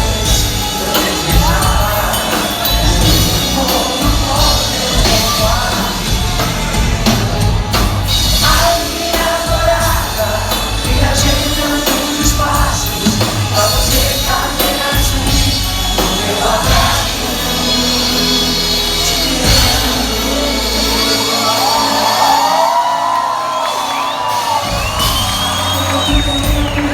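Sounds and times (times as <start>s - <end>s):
bass line: 0.0s - 22.6s
lead singer singing: 0.0s - 26.9s
pop-rock band playing live: 0.0s - 26.9s.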